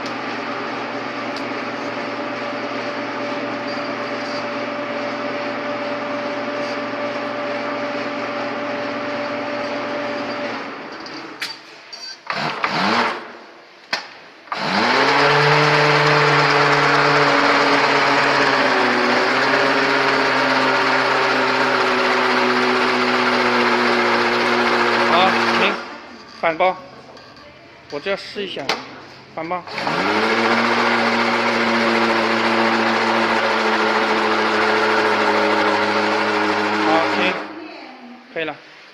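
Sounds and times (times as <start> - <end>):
taping machine humming: 14.5 - 26.4, 29.6 - 37.6.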